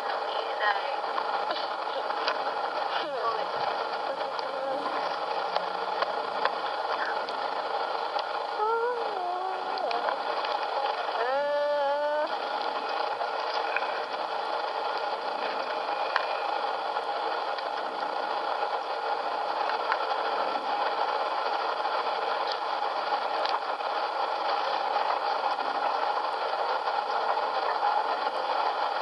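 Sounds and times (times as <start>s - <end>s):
train running noise: 0.0s - 29.0s.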